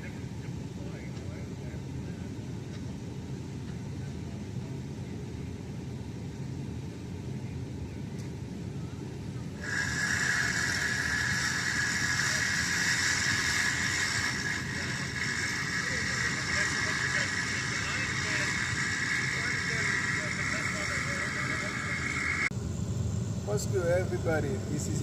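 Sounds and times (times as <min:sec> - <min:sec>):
machinery engine rumble: 0:00.0 - 0:25.0
high-pitched whirring hiss: 0:09.5 - 0:25.0.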